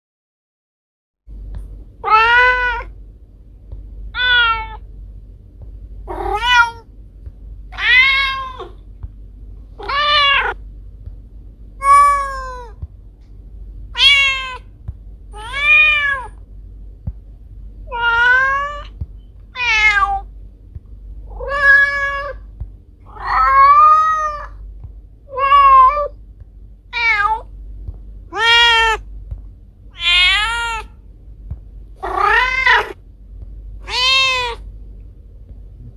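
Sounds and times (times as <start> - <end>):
faint low hum: 1.3 - 35.9
cat meowing: 2.0 - 2.9, 4.1 - 4.8, 6.1 - 6.8, 7.7 - 8.8, 9.8 - 10.6, 11.8 - 12.8, 13.9 - 14.7, 15.4 - 16.4, 17.9 - 20.3, 21.3 - 22.4, 23.1 - 24.6, 25.3 - 26.2, 26.9 - 27.5, 28.3 - 29.0, 29.9 - 31.0, 32.0 - 33.0, 33.8 - 34.6.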